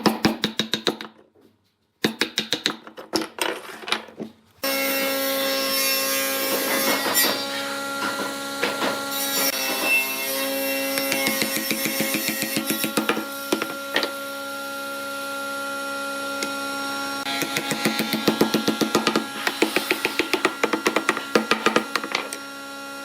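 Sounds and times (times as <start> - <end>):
woodturning lathe running: 4.7 - 23.0
tool scraping spinning wood: 5.0 - 14.2, 17.2 - 22.4
wooden knocking and tapping: 18.3 - 22.3.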